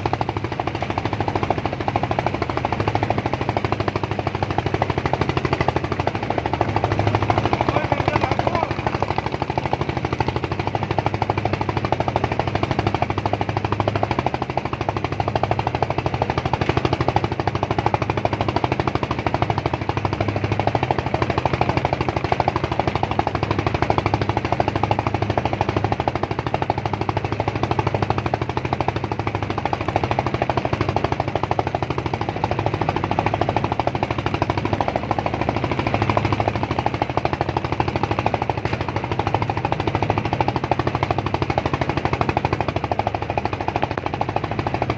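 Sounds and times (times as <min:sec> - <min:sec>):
small engine running: 0:00.0 - 0:44.9.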